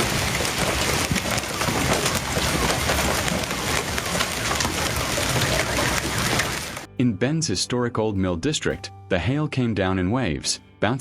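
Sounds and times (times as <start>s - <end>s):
hail clattering on hard surfaces: 0.0s - 6.9s.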